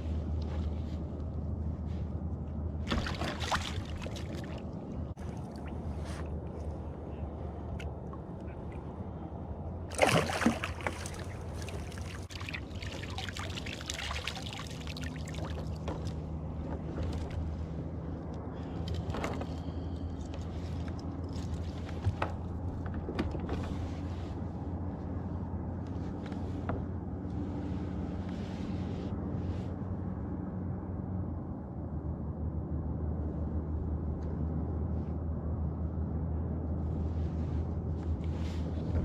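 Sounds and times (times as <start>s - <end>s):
steady low hum: 0.0s - 39.0s
water splashing around a kayak: 2.8s - 6.8s, 9.9s - 17.6s.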